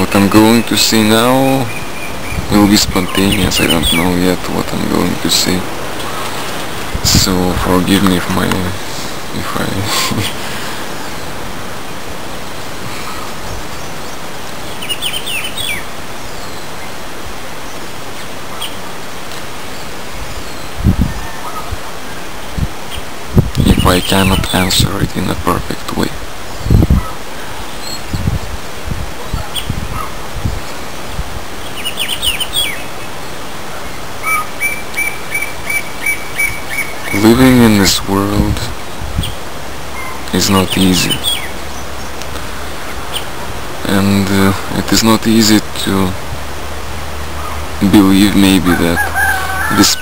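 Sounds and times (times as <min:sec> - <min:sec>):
bird chirping: 0:00.0 - 0:17.0, 0:31.6 - 0:38.0, 0:38.8 - 0:46.0
steady outdoor hiss: 0:00.0 - 0:50.0.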